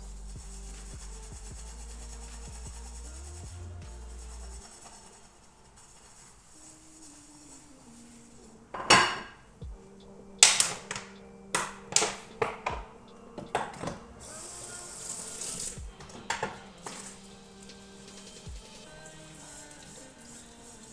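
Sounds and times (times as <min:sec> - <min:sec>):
dishes and pans clinking: 0:08.8 - 0:09.6, 0:10.4 - 0:14.1, 0:15.9 - 0:17.2.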